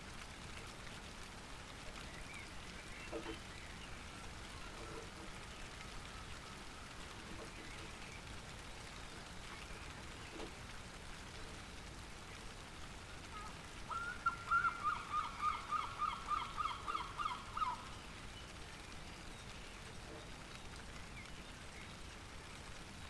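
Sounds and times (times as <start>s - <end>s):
light rain falling: 0.0s - 23.0s.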